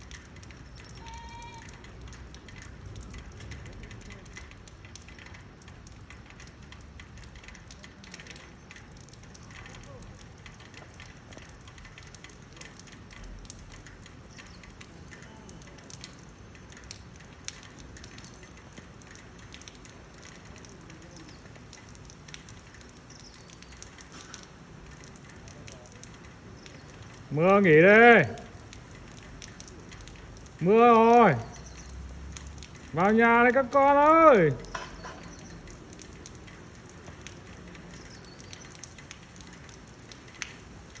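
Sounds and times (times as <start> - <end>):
rain falling: 0.0 - 41.0.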